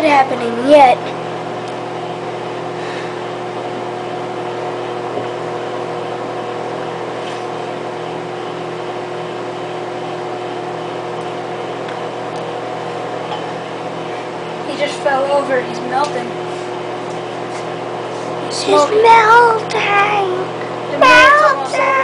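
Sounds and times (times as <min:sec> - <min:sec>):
microwave oven humming: 0:00.0 - 0:22.0.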